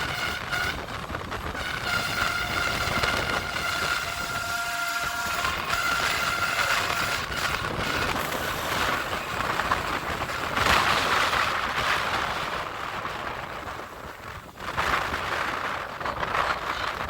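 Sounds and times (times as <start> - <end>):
train wheels on rails: 0.0 - 17.0
thin high squeal: 1.8 - 10.5.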